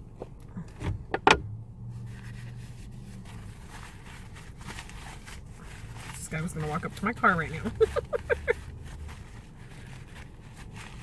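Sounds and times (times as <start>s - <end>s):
car cabin hum: 0.0s - 10.4s.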